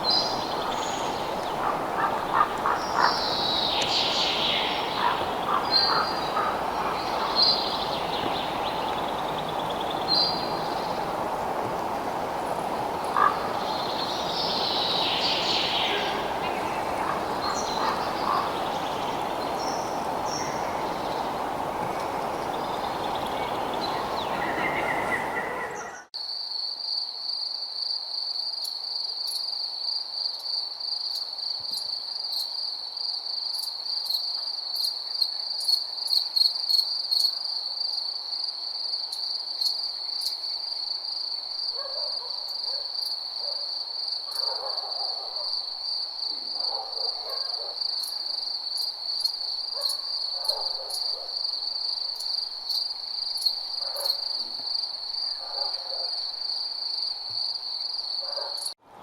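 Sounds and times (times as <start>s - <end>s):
birds chirping: 0.0s - 26.1s
crickets trilling: 0.0s - 58.8s.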